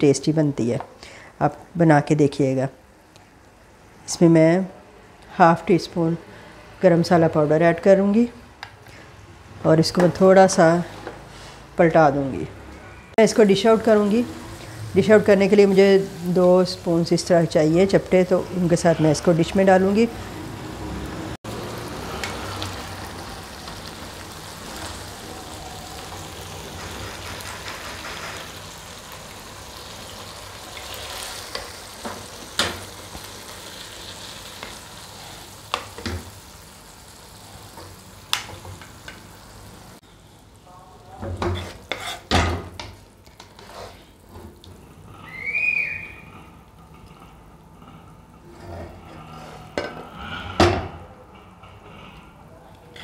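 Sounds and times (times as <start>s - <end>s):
fish gravy sizzling in a wok: 21.2s - 40.2s
plastic spoons scraping a pan: 41.5s - 42.3s, 43.4s - 44.1s.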